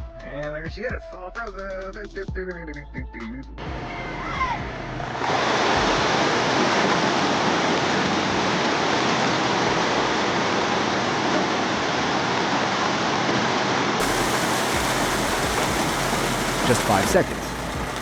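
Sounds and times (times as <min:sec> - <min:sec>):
steady rushing noise: 0:14.0 - 0:18.0.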